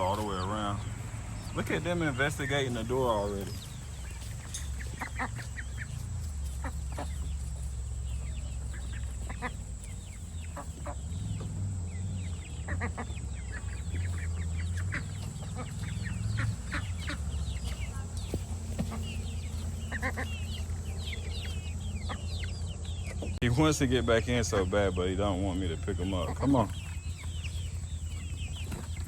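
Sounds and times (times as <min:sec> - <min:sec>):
chickens clucking: 0:00.0 - 0:29.0.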